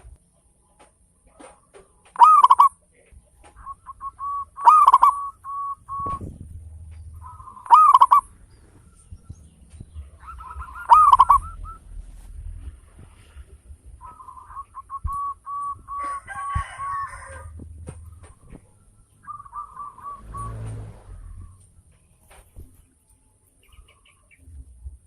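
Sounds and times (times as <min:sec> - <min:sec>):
soft staccato bird notes: 0:01.8 - 0:23.0
dove cooing: 0:02.2 - 0:21.6.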